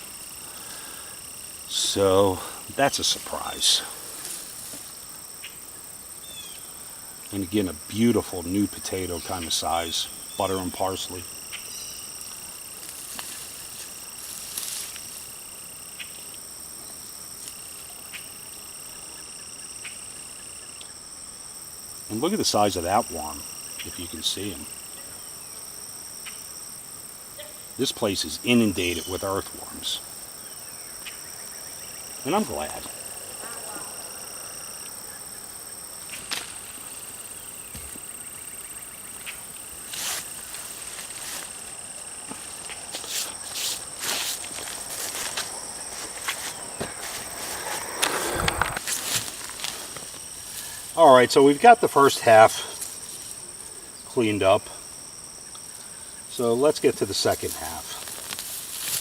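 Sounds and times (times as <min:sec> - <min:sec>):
insect chorus trilling: 0:00.0 - 0:59.0
lower insect trill: 0:00.0 - 0:59.0
hands digging in soil: 0:39.8 - 0:51.0, 0:57.3 - 0:59.0.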